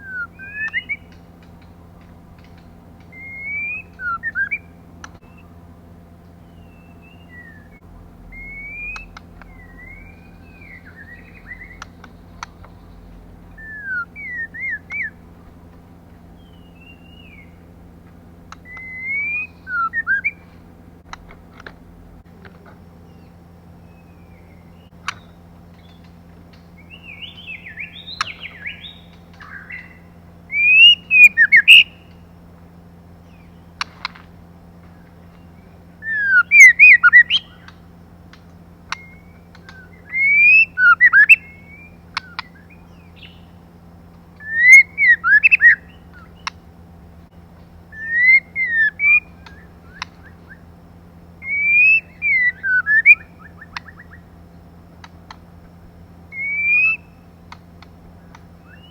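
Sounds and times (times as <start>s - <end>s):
bird whistling calls: 0.0s - 1.3s, 1.9s - 5.6s, 6.4s - 15.3s, 16.3s - 17.7s, 18.5s - 20.6s, 23.0s - 32.3s, 34.9s - 37.9s, 38.9s - 43.6s, 44.3s - 46.6s, 47.9s - 54.6s, 56.2s - 58.9s
soft bird chirps: 0.0s - 47.0s, 47.6s - 58.9s.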